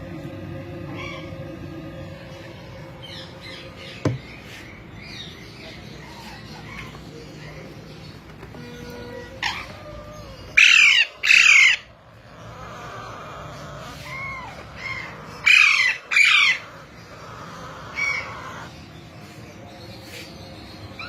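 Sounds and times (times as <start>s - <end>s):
parrots screeching: 0.8s - 1.5s, 5.0s - 19.0s.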